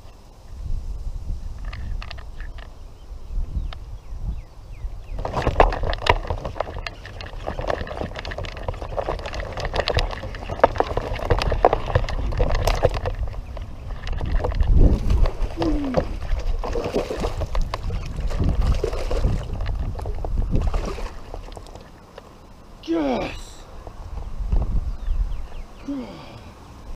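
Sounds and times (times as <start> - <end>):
water splashing around boat: 5.2 - 22.3
small knocks and rustles: 5.2 - 22.4.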